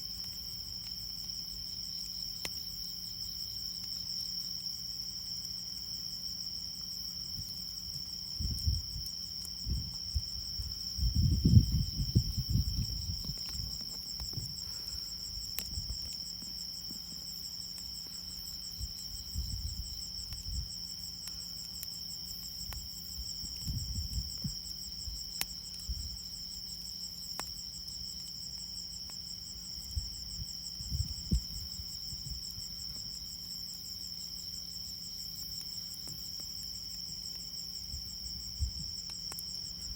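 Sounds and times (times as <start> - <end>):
crickets trilling: 0.0 - 39.9
wood fire popping: 7.4 - 26.0.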